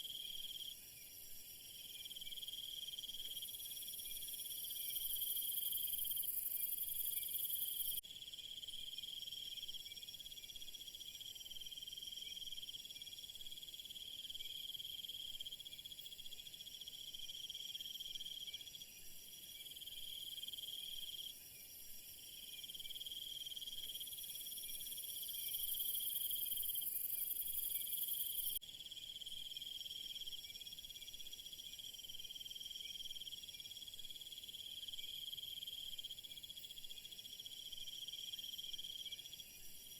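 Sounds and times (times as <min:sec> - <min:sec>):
crickets and insects chirping: 0:00.0 - 0:39.9
shrill high insect layer: 0:11.4 - 0:39.9.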